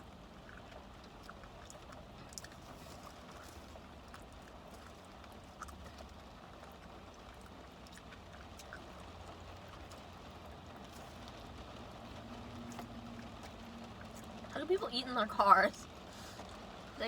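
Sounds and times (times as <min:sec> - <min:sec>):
faint chewing: 0:00.0 - 0:14.8, 0:15.8 - 0:17.0
low steady car hum: 0:00.0 - 0:17.0.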